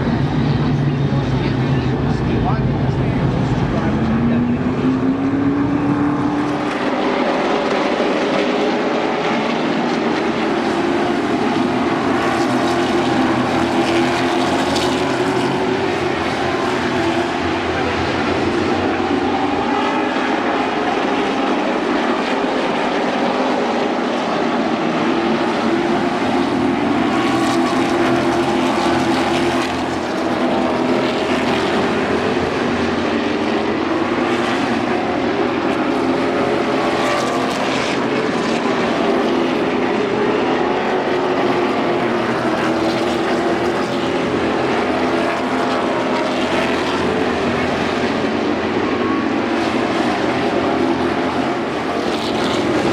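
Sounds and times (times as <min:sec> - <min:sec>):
stock car engines droning: 0:00.0 - 0:52.9.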